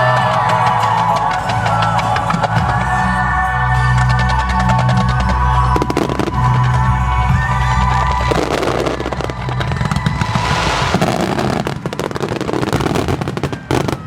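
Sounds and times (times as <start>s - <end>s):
festival music: 0.0s - 14.0s
fireworks bursting: 5.0s - 14.0s.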